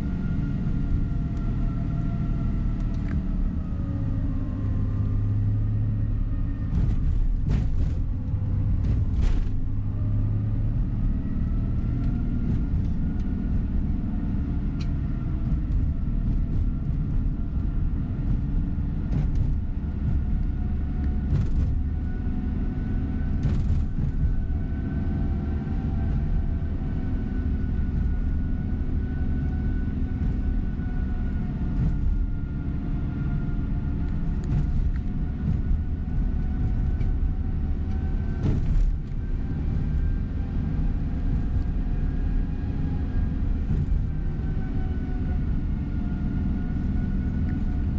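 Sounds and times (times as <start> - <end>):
coach engine and road rumble: 0.0 - 47.9.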